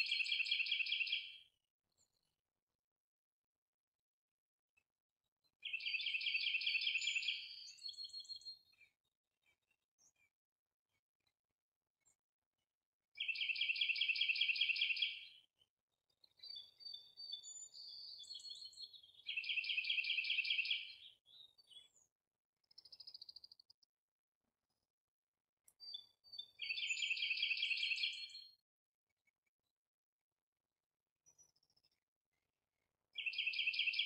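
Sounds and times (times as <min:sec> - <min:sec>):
songbird trilled song: 0:05.6 - 0:08.8, 0:16.3 - 0:22.0, 0:25.7 - 0:28.5, 0:33.2 - 0:34.0
bird chirps and whistled notes: 0:05.6 - 0:08.9, 0:16.2 - 0:22.0, 0:25.8 - 0:28.6, 0:33.2 - 0:34.0.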